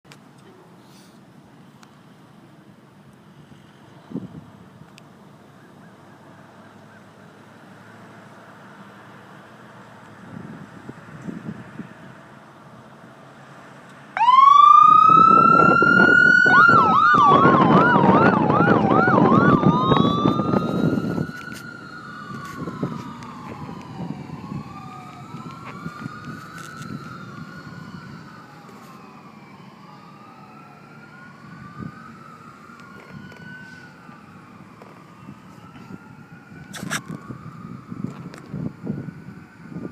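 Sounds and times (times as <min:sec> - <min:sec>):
fire truck siren wailing: 0:14.2 - 0:39.9.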